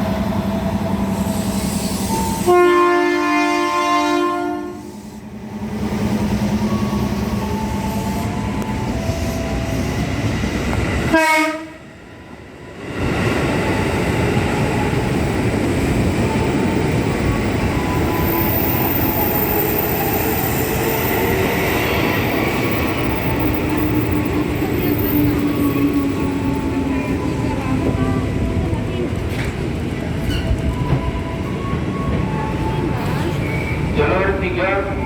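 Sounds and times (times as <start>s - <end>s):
train horn blast: 1.8s - 5.0s, 11.1s - 11.8s
train wheels clattering on rail: 18.2s - 33.5s.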